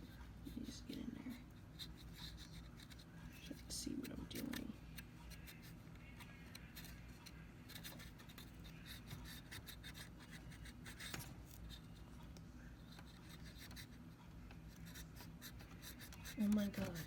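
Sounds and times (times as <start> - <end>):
scratchy scrubbing on plastic parts: 14.7 - 17.0.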